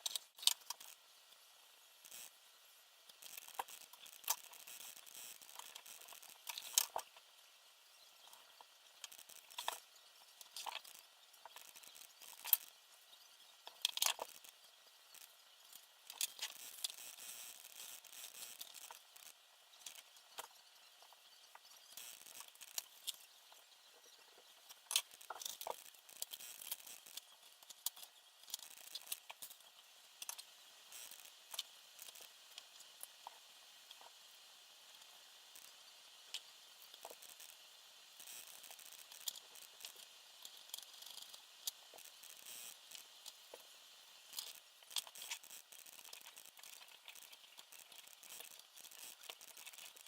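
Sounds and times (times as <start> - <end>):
small parts clicking and rattling: 0.0 - 2.4, 3.0 - 7.4, 8.1 - 50.0
faint hiss: 0.0 - 50.0.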